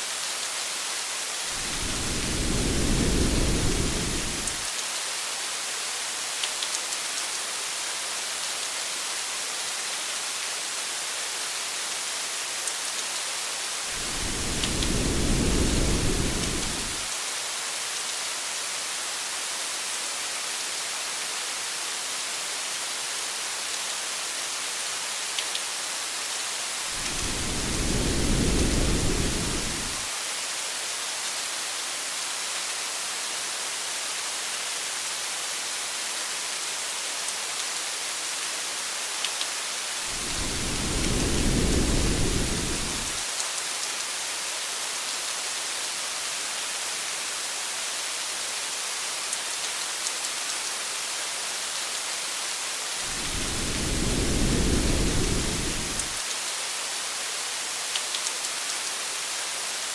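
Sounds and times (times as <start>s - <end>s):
heavy rain hissing: 1.2s - 4.8s, 13.7s - 17.2s, 26.6s - 30.3s, 39.9s - 43.3s, 52.9s - 56.3s
thunder rumbling: 1.6s - 4.6s, 14.0s - 17.1s, 27.0s - 30.1s, 40.1s - 43.2s, 53.0s - 56.2s.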